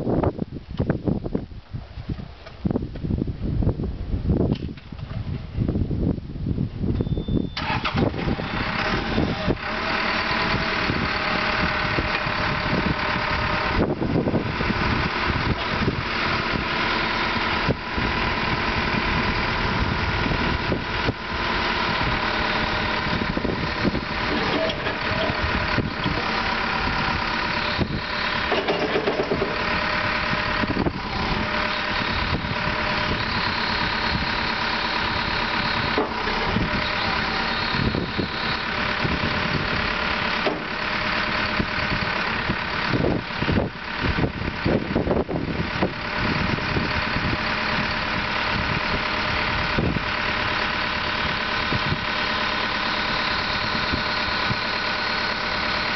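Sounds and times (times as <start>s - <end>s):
diesel engine starting and idling: 5.0s - 55.9s.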